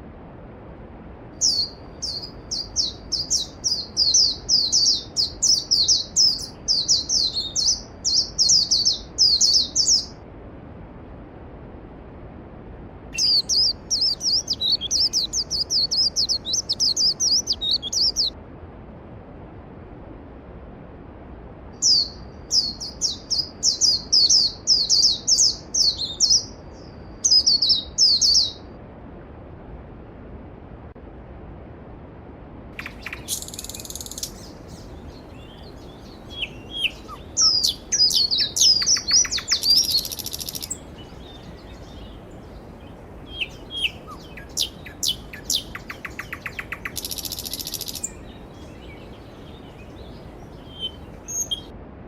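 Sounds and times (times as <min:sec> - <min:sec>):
songbird singing high notes: 0:01.4 - 0:10.2, 0:13.2 - 0:18.4, 0:21.8 - 0:28.6, 0:32.8 - 0:51.7.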